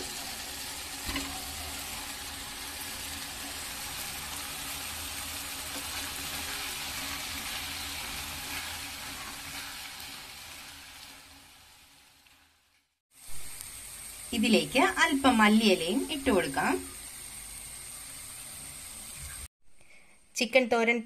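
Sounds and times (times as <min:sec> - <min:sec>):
food sizzling in a pot: 0:00.0 - 0:19.5
wooden spatula stirring: 0:05.7 - 0:10.2.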